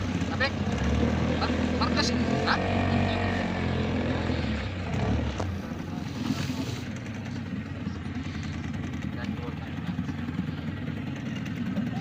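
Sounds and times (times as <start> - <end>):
motorboat engine humming: 0.0 - 12.0.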